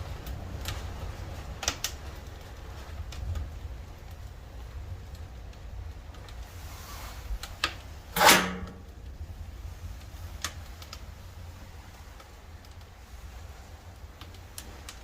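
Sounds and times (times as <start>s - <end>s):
low steady rumble: 0.0s - 15.0s
wood fire crackling: 0.0s - 15.0s
metallic scrape and clunk: 8.2s - 8.9s.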